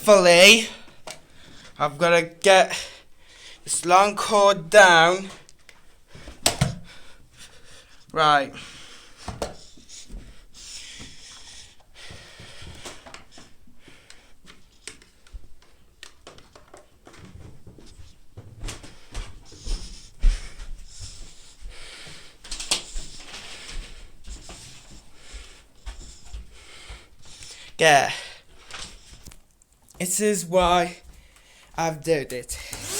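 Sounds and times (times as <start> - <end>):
person breathing heavily: 0.7 - 1.8, 2.7 - 3.7, 5.9 - 14.6, 18.8 - 29.2, 31.1 - 31.8.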